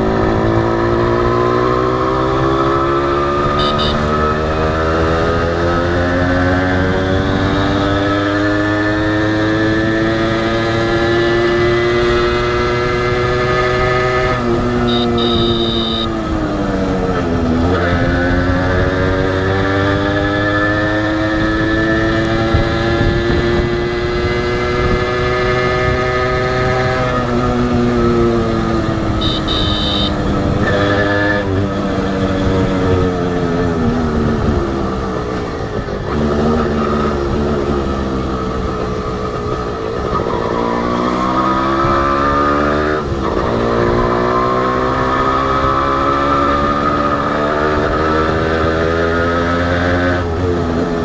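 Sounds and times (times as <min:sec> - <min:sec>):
two-stroke motorcycle engine: 0:00.0 - 0:40.2
high steady beep: 0:03.6 - 0:04.2, 0:14.9 - 0:16.1, 0:29.2 - 0:30.2.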